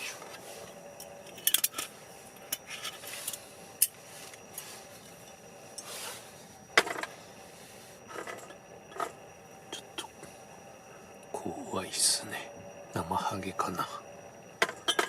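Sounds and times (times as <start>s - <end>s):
tableware clinking and knocking: 6.8s - 7.1s, 14.6s - 15.0s.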